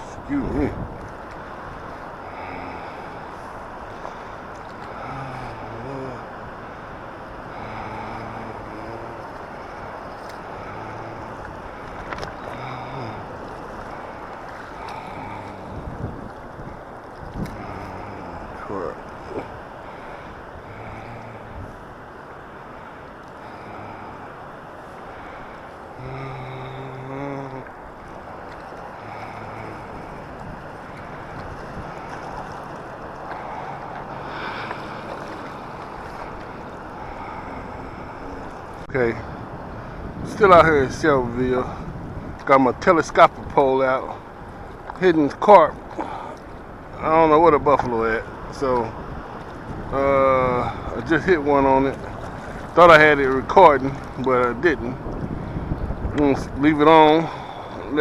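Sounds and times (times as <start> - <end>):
wind noise on microphone: 0.0 - 24.4, 25.1 - 58.0
rushing water: 0.0 - 58.0
faint clicks: 11.4 - 12.7.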